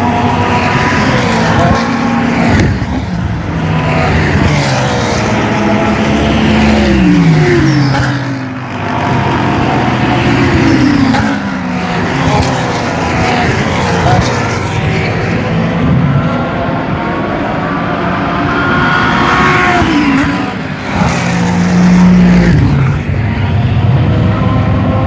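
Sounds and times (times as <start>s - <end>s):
race cars passing at speed: 0.0s - 25.0s.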